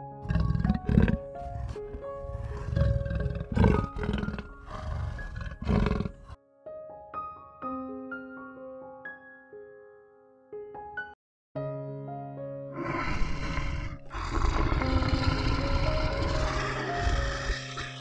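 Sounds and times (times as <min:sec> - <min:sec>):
soft piano music: 0:00.0 - 0:05.6, 0:06.2 - 0:12.8, 0:14.0 - 0:18.0
big cat roaring and growling: 0:00.0 - 0:06.4, 0:12.8 - 0:18.0.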